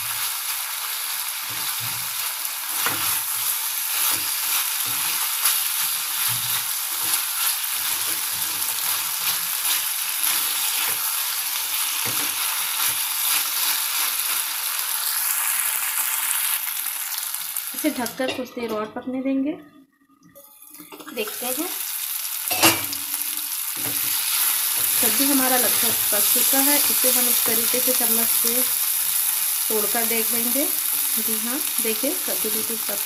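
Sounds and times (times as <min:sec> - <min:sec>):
pumpkin frying in oil: 0:00.0 - 0:18.3, 0:20.4 - 0:33.0
spatula stirring and scraping: 0:01.4 - 0:15.6, 0:23.8 - 0:32.0.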